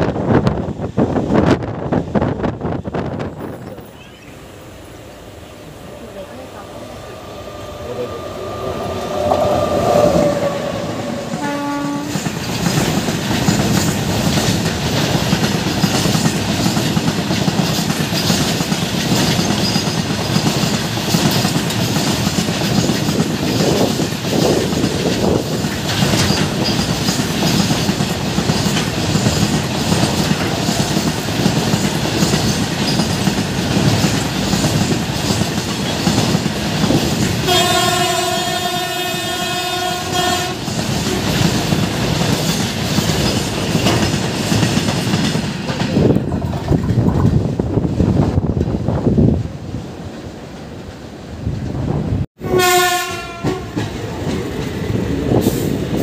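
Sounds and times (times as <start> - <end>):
train wheels clattering on rails: 8.8 - 38.8, 39.5 - 49.2, 52.8 - 56.0
train horn: 9.1 - 12.2, 37.4 - 41.4, 52.4 - 53.8.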